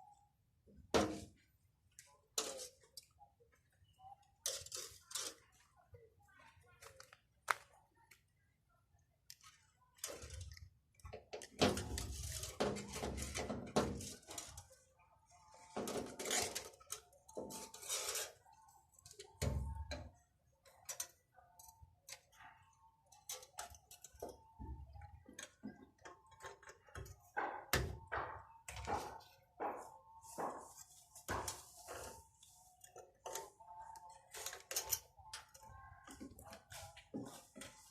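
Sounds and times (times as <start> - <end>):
small tools clicking and scraping: 4.4 - 5.7, 15.8 - 19.4, 23.1 - 24.4, 30.8 - 37.9.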